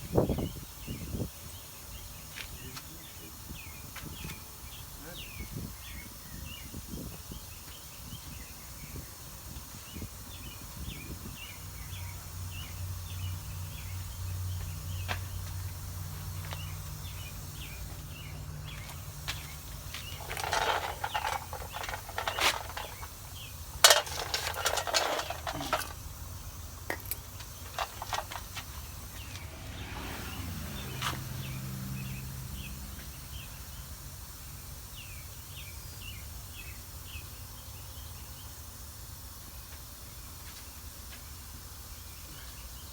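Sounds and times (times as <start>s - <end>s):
birds or insects chirping: 0.0s - 42.9s
metal tools clinking and rattling: 20.1s - 23.2s, 23.8s - 26.0s, 27.1s - 28.7s
low hum: 27.7s - 33.8s.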